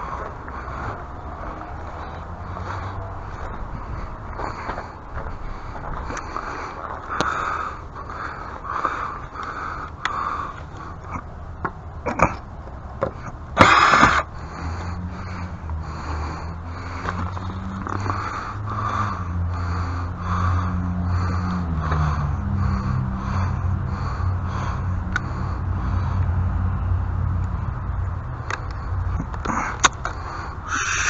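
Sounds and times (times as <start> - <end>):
low motor hum: 0.0 - 31.0
loud rasping noise: 13.6 - 26.2, 29.5 - 31.0.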